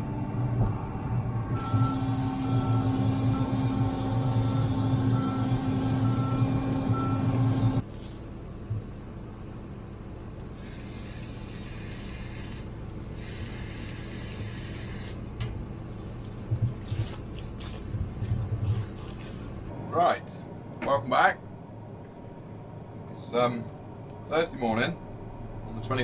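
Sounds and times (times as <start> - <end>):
farm machine engine humming: 0.0 - 19.8.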